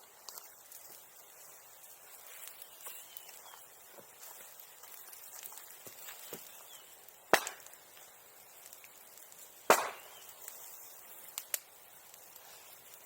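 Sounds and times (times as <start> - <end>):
loud sharp cracks: 7.3 - 7.8, 9.7 - 10.2.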